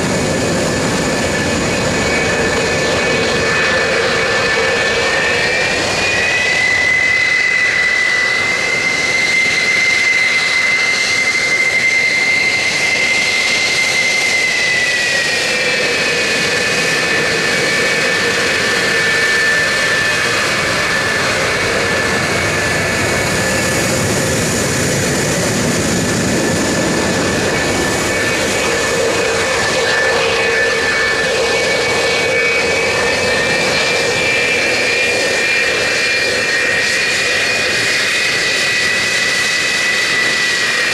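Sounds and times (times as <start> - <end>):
high turbine whine: 0.0 - 40.9
jet engines roaring: 0.0 - 40.9.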